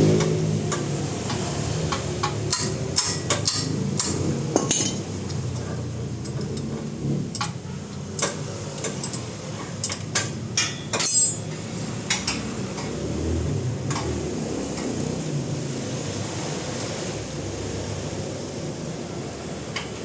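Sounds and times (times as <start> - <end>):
metal tools clinking: 8.2 - 12.4.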